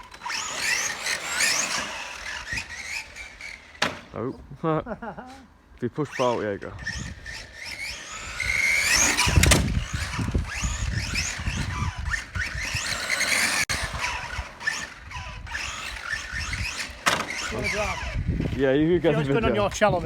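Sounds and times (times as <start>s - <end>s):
electric motor whining: 0.0s - 4.2s, 6.1s - 20.0s
tyre noise on asphalt: 6.9s - 18.8s.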